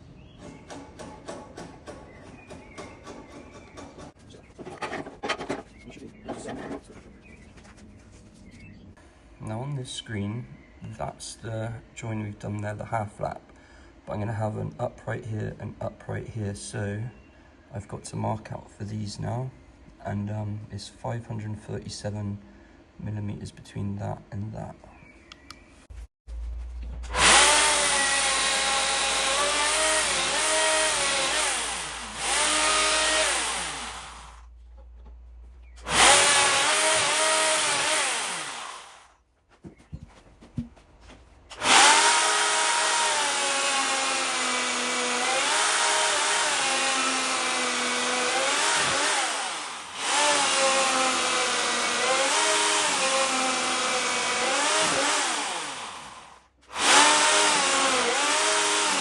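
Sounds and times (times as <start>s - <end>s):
power tool cutting wood: 27.0s - 34.4s, 35.8s - 39.1s, 41.5s - 59.0s.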